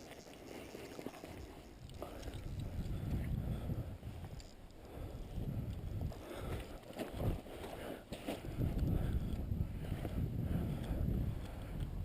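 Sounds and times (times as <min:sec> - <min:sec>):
wind buffeting microphone: 0:01.8 - 0:07.6, 0:08.4 - 0:12.0.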